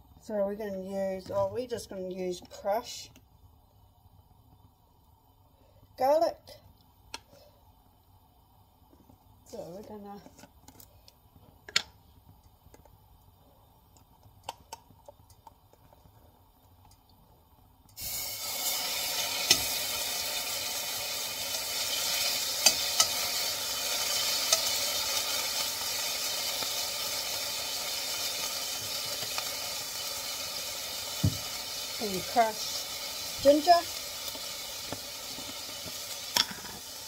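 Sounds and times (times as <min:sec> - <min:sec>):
garlic sizzling in hot oil: 0:00.0 - 0:37.0
utensil clicking against pot: 0:22.6 - 0:23.2.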